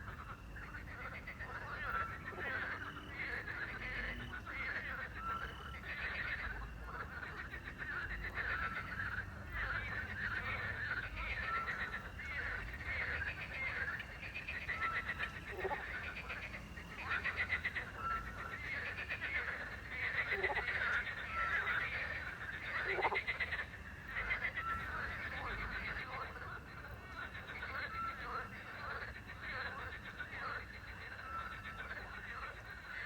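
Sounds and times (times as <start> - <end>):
frogs croaking: 0.0 - 33.0.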